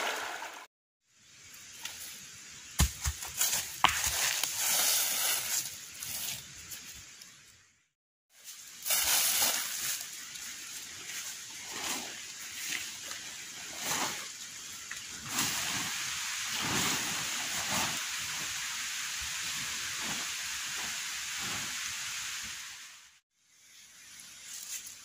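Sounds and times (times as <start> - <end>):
heavy rain hissing: 3.4 - 7.1, 8.5 - 23.2.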